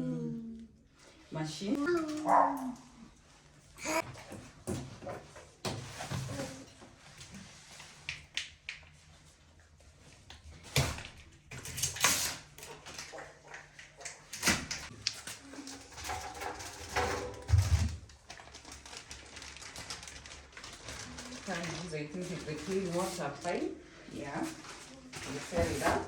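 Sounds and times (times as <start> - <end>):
packaging rustling: 17.6 - 23.7.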